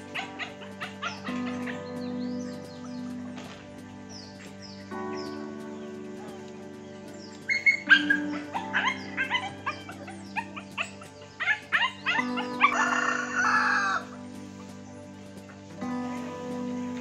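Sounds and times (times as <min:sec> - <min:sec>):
soft background music: 0:00.0 - 0:17.0
bird chirps and harsh call: 0:07.1 - 0:14.1.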